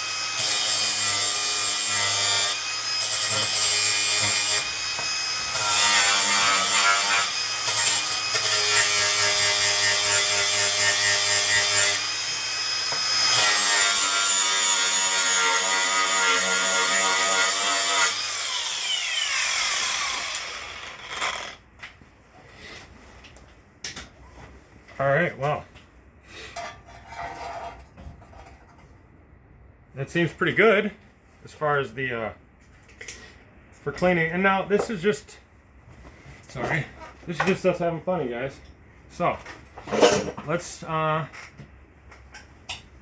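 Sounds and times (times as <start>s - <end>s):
power grinder grinding steel: 0.0s - 21.6s.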